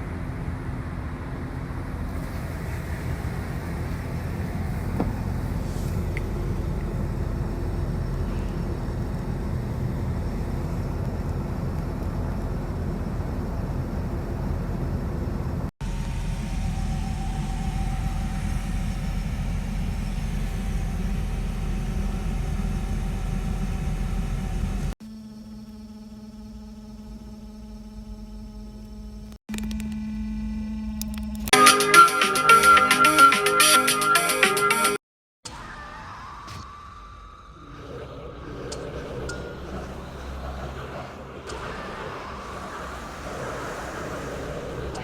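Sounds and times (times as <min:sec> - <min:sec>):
vehicle driving rumble: 0:00.0 - 0:25.0, 0:37.8 - 0:45.0.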